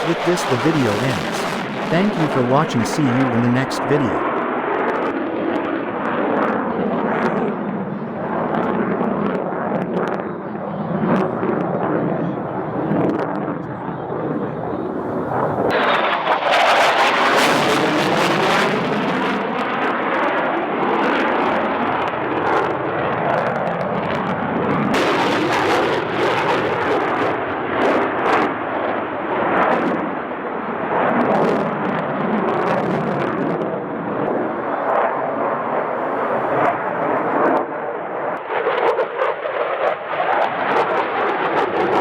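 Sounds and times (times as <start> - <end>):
jet engine roaring: 0.0 - 1.9.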